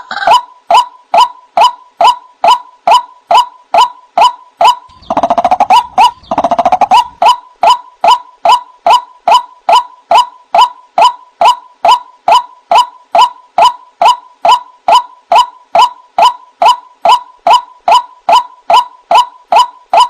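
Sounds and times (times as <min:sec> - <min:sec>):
waterhen wak calls: 0:00.0 - 0:14.2
bird rattling calls: 0:04.6 - 0:08.2.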